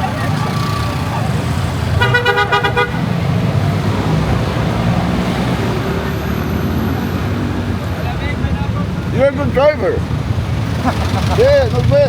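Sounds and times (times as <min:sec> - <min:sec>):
motorcycle engine rumble: 0:00.0 - 0:12.0
vehicle horn beeping: 0:01.9 - 0:03.2.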